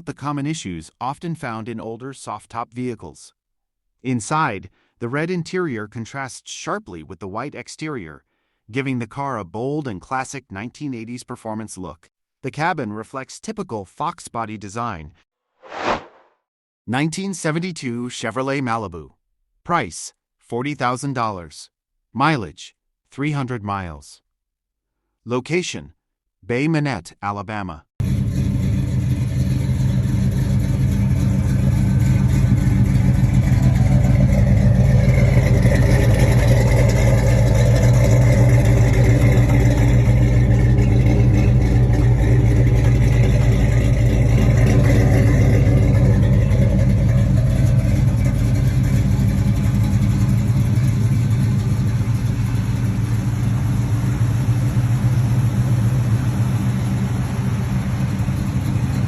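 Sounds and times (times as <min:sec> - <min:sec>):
car engine running: 0:28.0 - 0:59.0.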